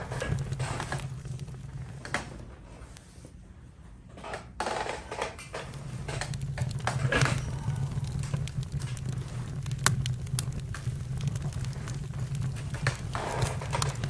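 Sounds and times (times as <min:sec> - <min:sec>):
campfire crackling and popping: 0:00.0 - 0:02.6, 0:05.4 - 0:14.0
low steady rumble: 0:00.0 - 0:03.1, 0:05.5 - 0:14.0.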